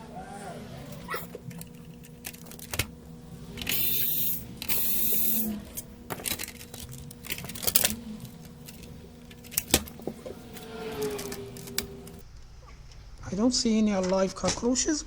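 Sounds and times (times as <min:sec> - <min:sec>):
spray can hissing: 0:03.6 - 0:05.5.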